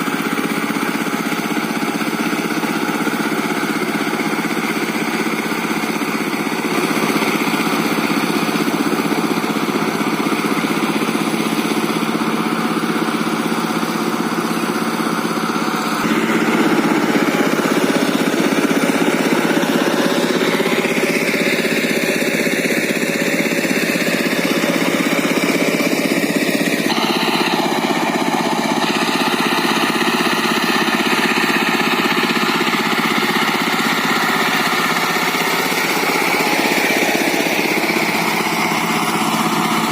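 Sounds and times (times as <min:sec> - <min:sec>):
tractor engine with rotary tiller: 0:00.0 - 0:39.9.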